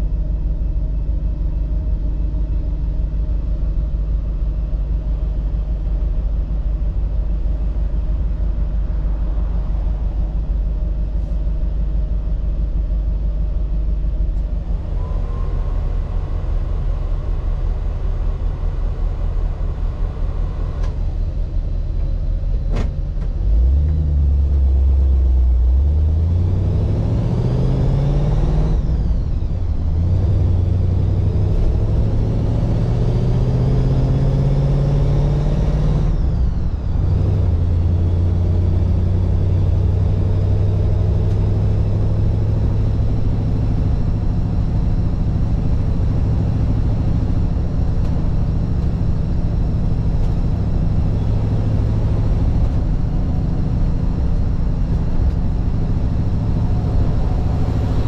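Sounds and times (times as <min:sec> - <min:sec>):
car engine accelerating through gears: 0:14.3 - 0:58.0.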